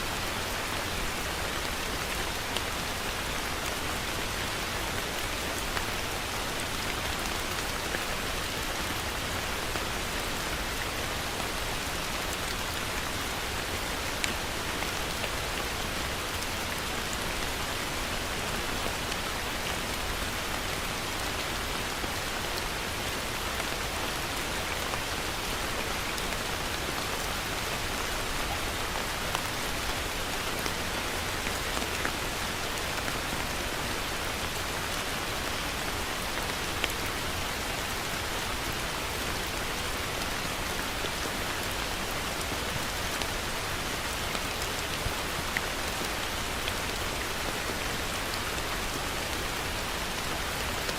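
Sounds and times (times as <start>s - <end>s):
heavy rain falling: 0.0s - 50.9s.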